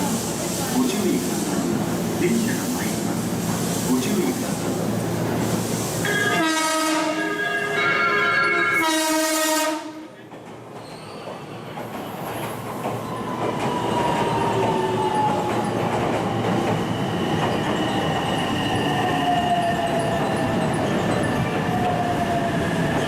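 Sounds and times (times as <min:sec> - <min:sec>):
train horn: 0:06.1 - 0:10.2
wheels on rail noise: 0:10.2 - 0:23.0.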